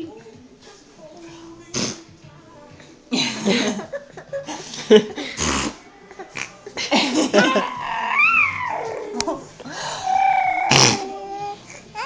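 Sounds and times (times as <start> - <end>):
baby squealing and cooing: 7.4 - 12.0.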